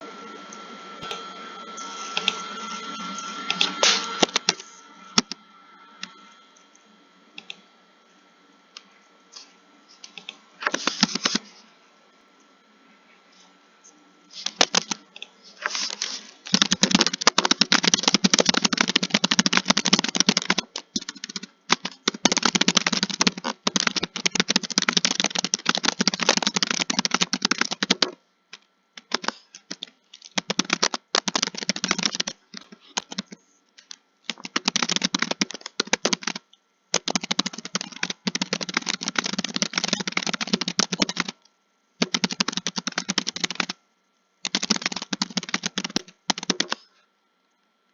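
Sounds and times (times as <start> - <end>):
computer keyboard typing: 3.2 - 5.4, 10.0 - 11.5, 14.4 - 28.2, 29.0 - 41.4, 42.0 - 43.8, 44.4 - 46.9.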